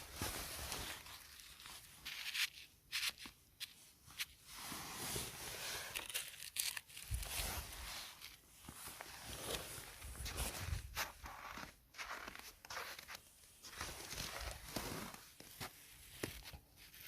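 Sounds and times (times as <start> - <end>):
dry tearing crackling rustle: 5.8 - 8.4.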